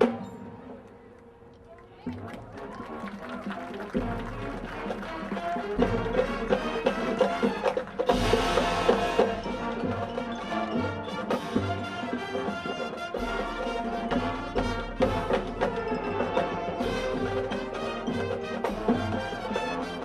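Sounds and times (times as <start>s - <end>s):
marching band playing: 2.0s - 20.0s.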